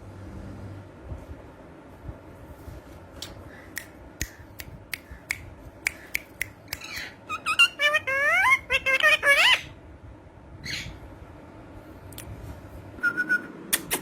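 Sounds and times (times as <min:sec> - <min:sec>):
parrot whistled calls: 0:06.8 - 0:09.7, 0:13.0 - 0:13.6.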